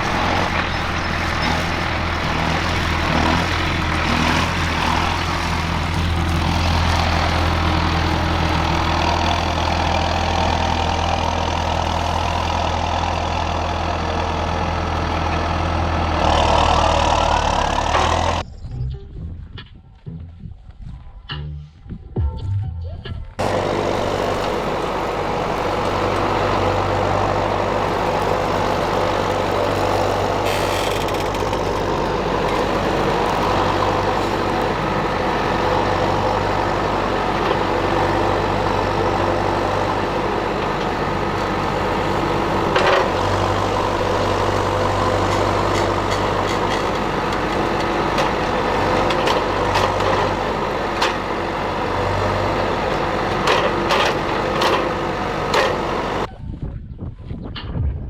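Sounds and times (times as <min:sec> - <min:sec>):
tractor engine running: 0:00.0 - 0:18.5, 0:23.4 - 0:56.3
sharp clicks or rattles: 0:28.0 - 0:34.8.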